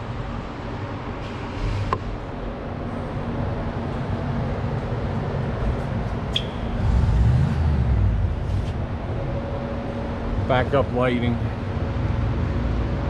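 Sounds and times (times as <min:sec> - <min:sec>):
motor vehicle rumbling: 0:01.0 - 0:13.0
short high squeak: 0:06.3 - 0:06.7.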